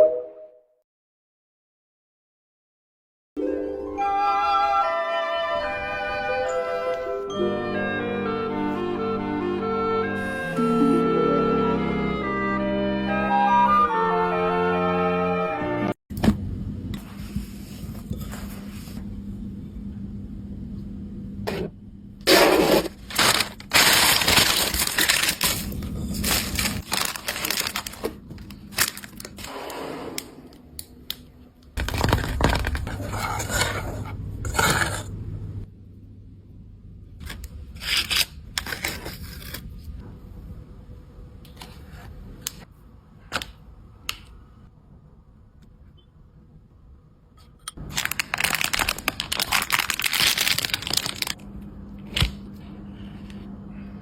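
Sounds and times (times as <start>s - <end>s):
scraping and cracking: 22.3s - 29.5s, 31.8s - 35.1s, 47.8s - 51.4s.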